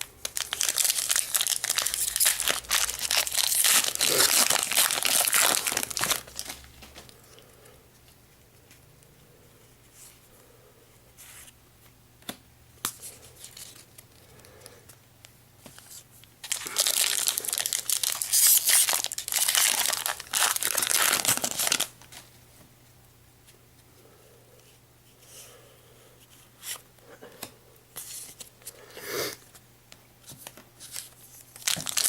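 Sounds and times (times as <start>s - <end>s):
foil wrapper crinkling and tearing: 0.0s - 7.2s, 16.4s - 22.3s, 30.5s - 32.0s.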